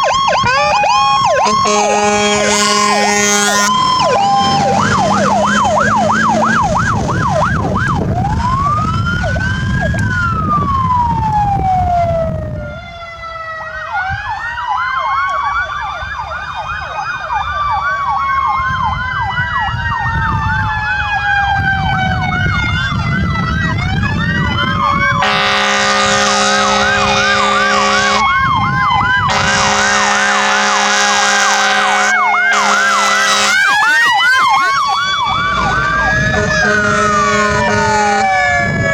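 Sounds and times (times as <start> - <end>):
engine rumble: 0.0 - 13.7, 18.8 - 38.9
fire truck sirens wailing: 0.0 - 38.9
air horn blasts: 0.6 - 6.6, 24.8 - 28.5, 29.2 - 38.8.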